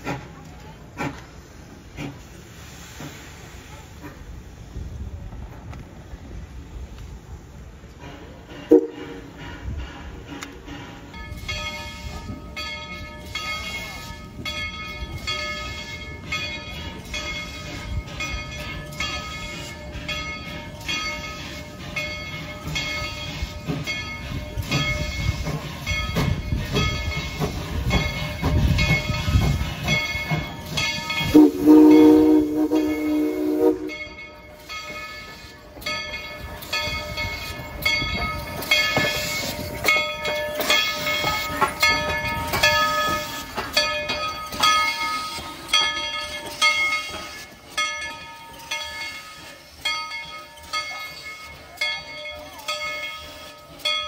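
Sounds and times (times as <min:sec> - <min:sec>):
steam train rumble and clatter: 0:00.0 - 0:54.0
steam whistle blast: 0:08.7 - 0:09.2, 0:31.3 - 0:34.1.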